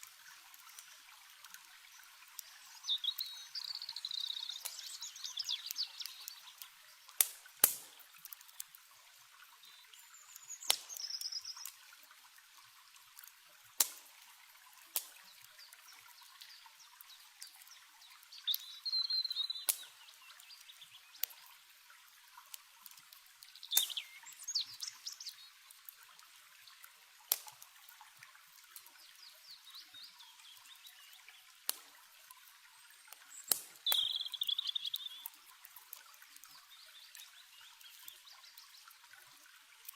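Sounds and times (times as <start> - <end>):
campfire crackling and popping: 0.0 - 29.7, 30.6 - 39.9
running water trickling: 0.0 - 39.9
bird chirps: 2.4 - 6.6, 10.0 - 11.7, 18.3 - 21.0, 23.6 - 25.4, 33.3 - 35.3.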